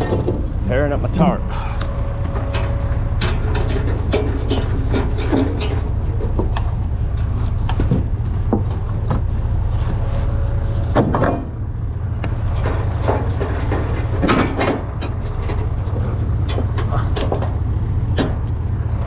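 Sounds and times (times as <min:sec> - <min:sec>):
debris knocking and clattering: 0:00.0 - 0:00.6, 0:02.5 - 0:09.3, 0:12.3 - 0:18.5
vehicle engine running: 0:00.0 - 0:19.0.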